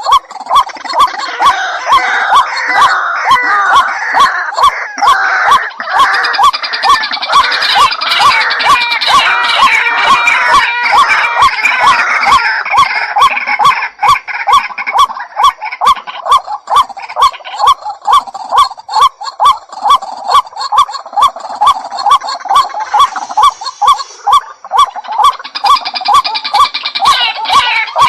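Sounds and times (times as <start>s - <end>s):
waterhen harsh calls: 0.0s - 28.0s.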